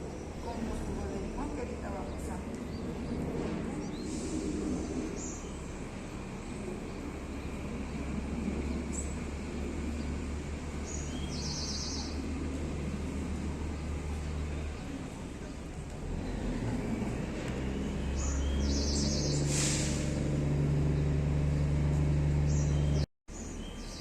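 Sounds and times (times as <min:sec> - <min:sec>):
bird chirps: 0:10.8 - 0:12.3, 0:17.8 - 0:19.5, 0:22.4 - 0:24.0.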